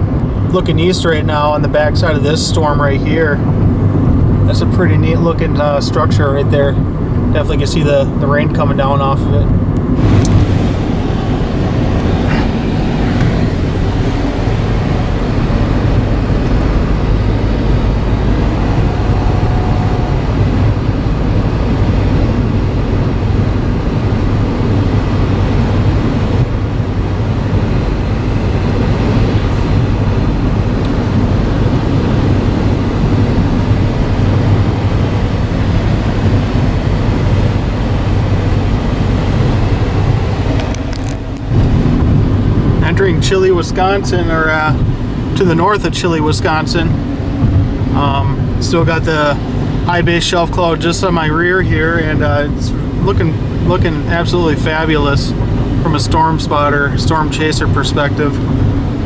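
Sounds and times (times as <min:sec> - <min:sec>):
car road and engine noise: 0:00.0 - 0:59.0.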